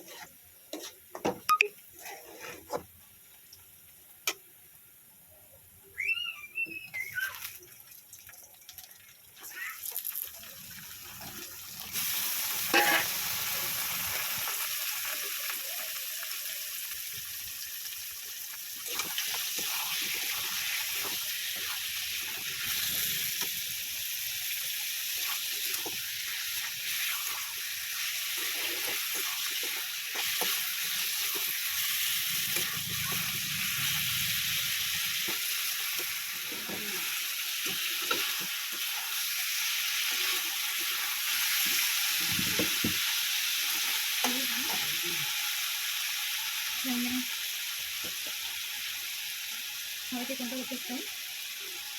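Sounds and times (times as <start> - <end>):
spatula scraping a pan: 0.0 - 1.3, 2.0 - 2.9, 12.6 - 13.3, 18.9 - 23.5, 25.2 - 39.1
meat sizzling in hot oil: 6.0 - 51.9.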